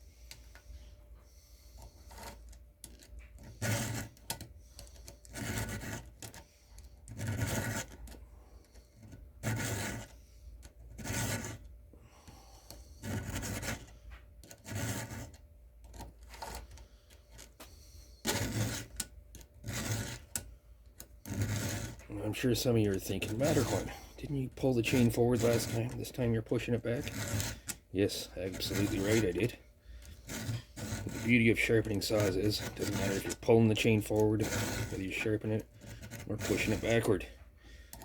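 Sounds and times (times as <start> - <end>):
file rasping on chainsaw chain: 1.8 - 8.2, 9.0 - 10.2, 10.9 - 11.7, 12.7 - 13.9, 14.5 - 15.4, 18.2 - 20.4, 21.2 - 37.3.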